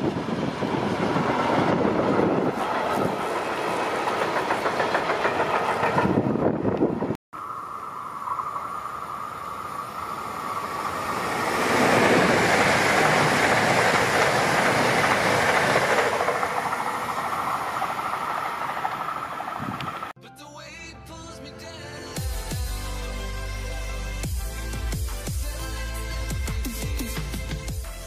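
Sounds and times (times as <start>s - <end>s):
train wheels rumbling on rails: 0.0s - 7.2s, 9.8s - 20.1s
steady high whine: 7.4s - 14.3s.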